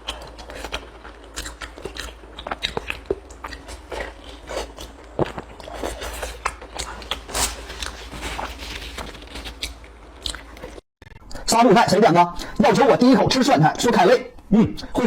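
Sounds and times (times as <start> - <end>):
chewing clicks and crunches: 0.0 - 10.8
steady low hum: 0.0 - 11.6.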